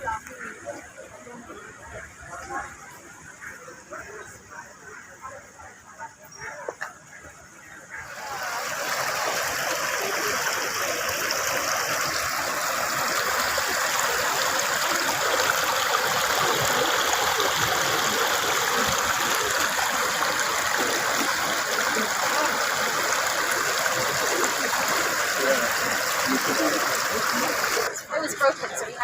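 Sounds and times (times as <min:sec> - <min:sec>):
fountain water splashing: 0:08.0 - 0:29.0.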